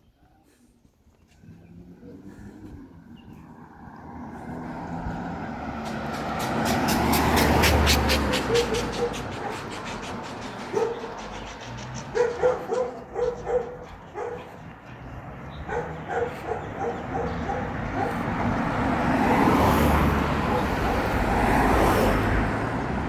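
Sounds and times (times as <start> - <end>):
vehicle passing: 1.2 - 23.0
dog barking: 7.0 - 19.6, 20.3 - 21.0.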